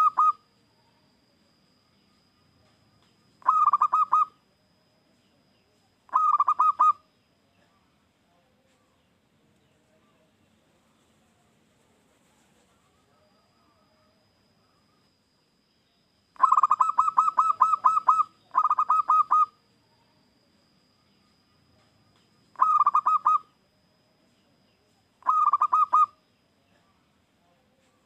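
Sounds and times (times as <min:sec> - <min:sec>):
dove rapid cooing song: 0:00.0 - 0:00.5, 0:03.4 - 0:04.4, 0:06.1 - 0:07.1, 0:16.4 - 0:19.6, 0:22.5 - 0:23.6, 0:25.2 - 0:26.2.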